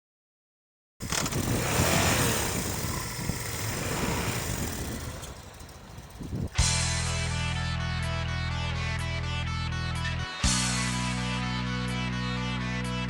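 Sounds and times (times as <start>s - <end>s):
motorcycle engine running: 1.0s - 7.9s.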